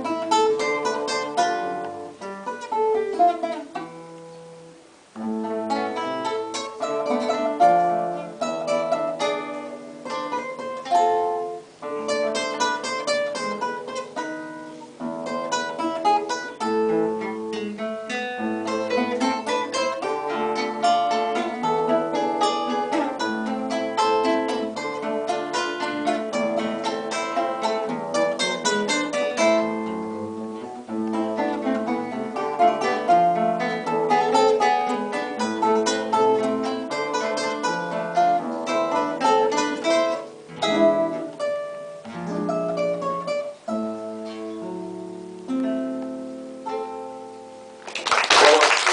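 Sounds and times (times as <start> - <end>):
plucked string instrument duet: 0.0 - 48.9.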